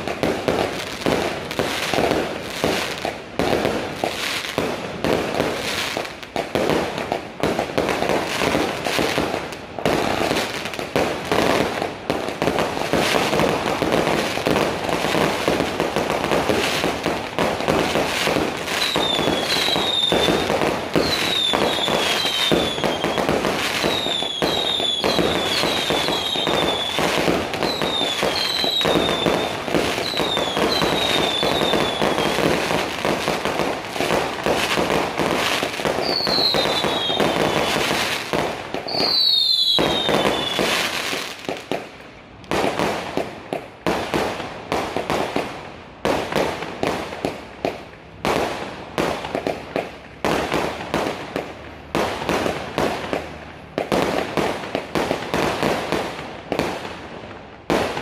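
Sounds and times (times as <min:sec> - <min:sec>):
fireworks popping and crackling: 0:00.0 - 0:58.0
falling firework whistles: 0:18.2 - 0:32.9, 0:34.6 - 0:41.5.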